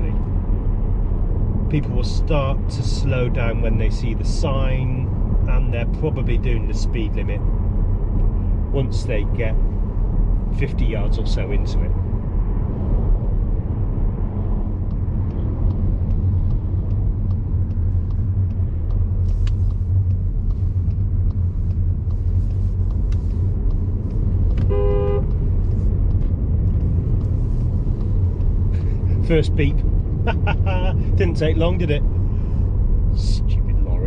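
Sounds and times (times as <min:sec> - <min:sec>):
road and engine rumble: 0:00.0 - 0:34.0
short horn beep: 0:24.7 - 0:25.3.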